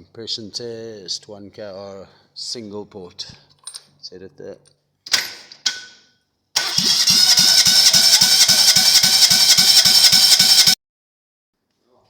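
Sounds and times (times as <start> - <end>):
engine cranking on starter motor: 6.6 - 10.8.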